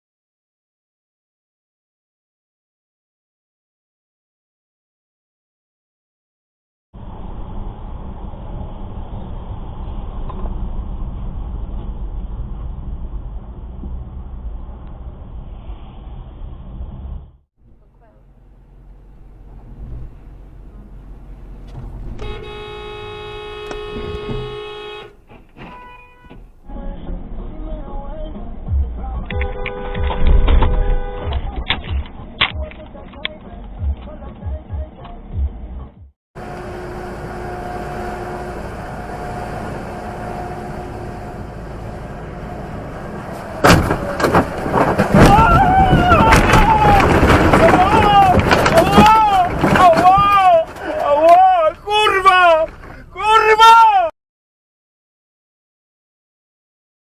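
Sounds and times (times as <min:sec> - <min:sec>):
road traffic rumble: 0:07.0 - 0:32.4, 0:35.5 - 0:53.4
car horn blast: 0:22.2 - 0:26.5, 0:29.3 - 0:31.4
car collision crash: 0:43.6 - 0:51.1.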